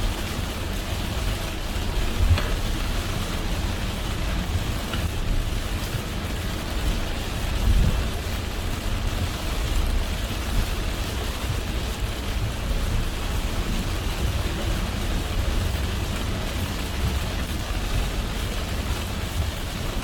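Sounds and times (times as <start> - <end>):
heavy rain hiss on car: 0.0 - 20.0.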